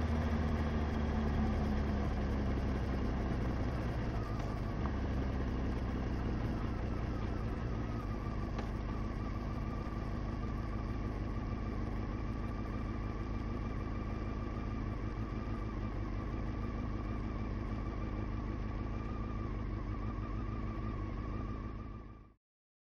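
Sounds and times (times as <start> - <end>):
motorcycle engine running: 0.0 - 22.3.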